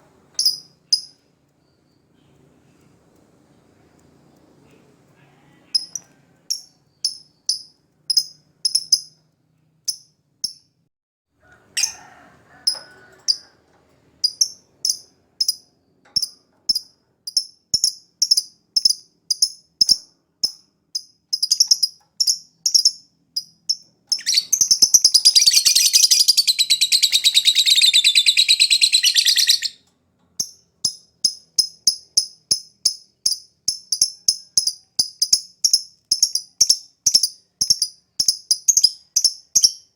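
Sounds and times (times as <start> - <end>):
lovebird chirping: 0.4 - 2.8, 5.7 - 9.2, 14.2 - 20.0, 21.0 - 29.8, 30.4 - 39.9
lovebird trilling song: 5.7 - 9.2, 21.0 - 29.8, 30.4 - 39.9.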